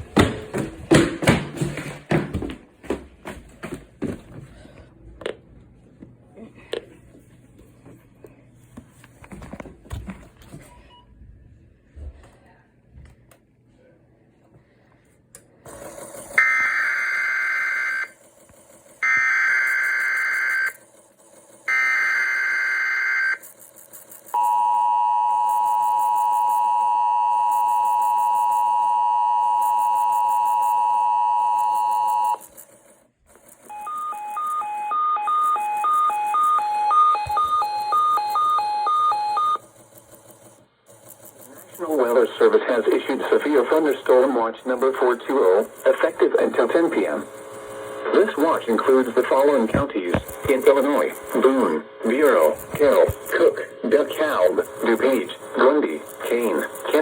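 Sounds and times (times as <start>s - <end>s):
steady two-tone attention signal: 33.7s - 39.6s
screechy data bursts: 40.9s - 57.0s.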